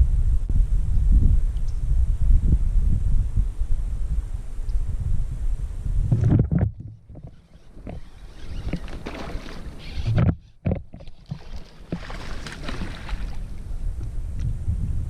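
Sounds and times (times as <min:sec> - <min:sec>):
water moving against hull: 0:06.0 - 0:14.2.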